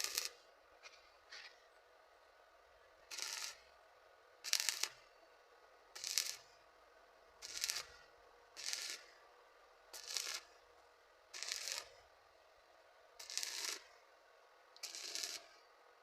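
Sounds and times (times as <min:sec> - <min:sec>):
welding arc crackling: 0:00.0 - 0:00.4, 0:03.1 - 0:03.6, 0:04.5 - 0:05.0, 0:06.0 - 0:06.4, 0:07.4 - 0:08.0, 0:08.6 - 0:09.1, 0:10.0 - 0:10.5, 0:11.4 - 0:12.0, 0:13.2 - 0:13.8, 0:14.8 - 0:15.5.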